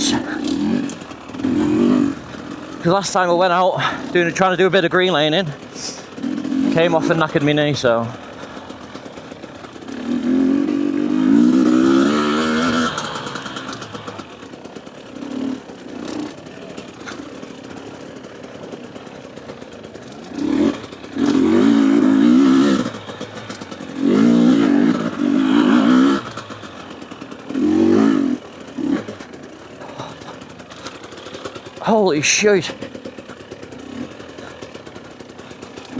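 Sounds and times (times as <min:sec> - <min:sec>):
two-stroke motorcycle engine: 0:00.0 - 0:35.9.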